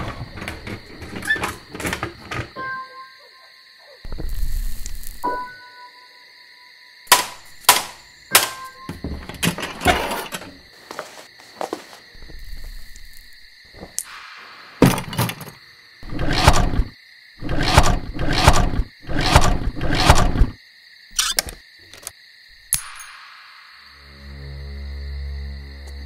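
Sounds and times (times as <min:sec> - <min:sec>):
sharp clicks: 0:16.1 - 0:20.6.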